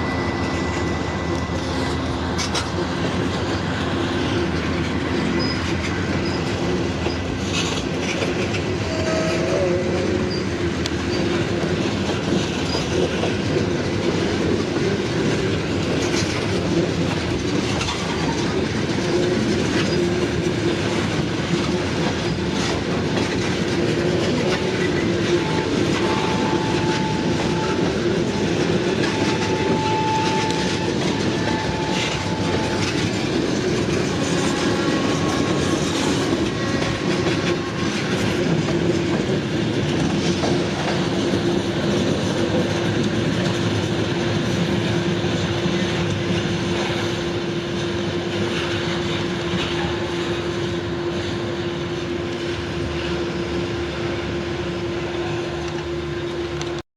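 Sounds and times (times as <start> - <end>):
wheels squealing: 0.0 - 13.1, 14.9 - 43.1
train wheels clacking on rails: 0.0 - 56.8.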